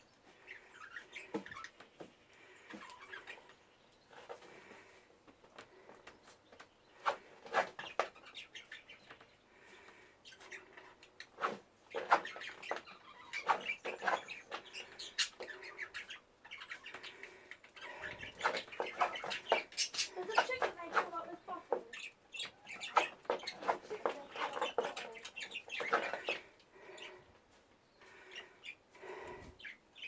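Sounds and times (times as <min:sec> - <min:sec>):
hen chirping and clucking: 0:00.0 - 0:05.0, 0:05.8 - 0:30.0
scratching and rustling: 0:00.3 - 0:29.6.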